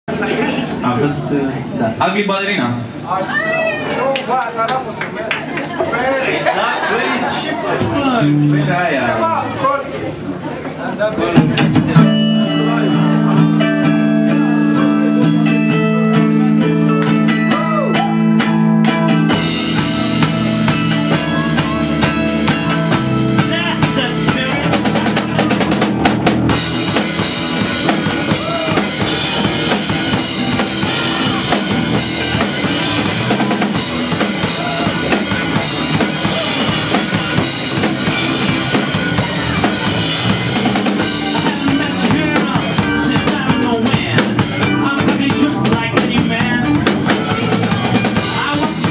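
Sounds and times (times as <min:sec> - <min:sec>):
rock band playing: 0:07.6 - 0:10.2, 0:11.1 - 0:48.9
electric guitar chords: 0:11.6 - 0:48.9.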